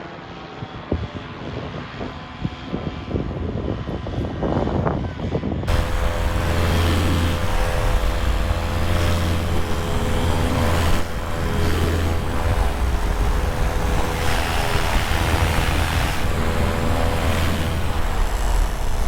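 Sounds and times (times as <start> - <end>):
paramotor engine and propeller: 5.2 - 19.0
wind rushing: 5.7 - 19.0.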